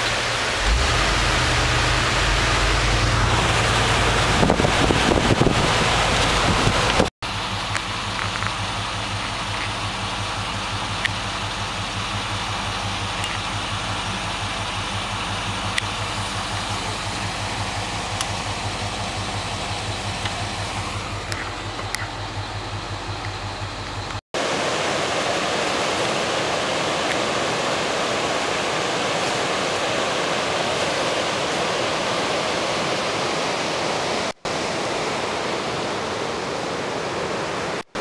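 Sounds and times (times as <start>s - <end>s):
vehicle engine idling: 0.0s - 24.2s
river rapids rushing: 0.0s - 38.0s.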